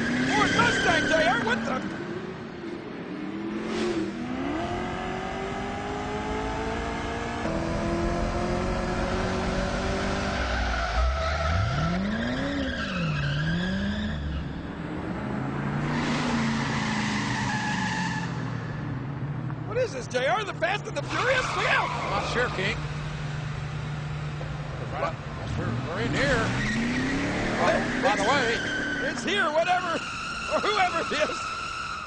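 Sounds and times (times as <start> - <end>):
tyres squealing: 0.0 - 2.0, 10.2 - 14.7, 20.0 - 23.0, 24.8 - 32.0
car engine accelerating hard: 3.0 - 17.5, 20.6 - 31.2.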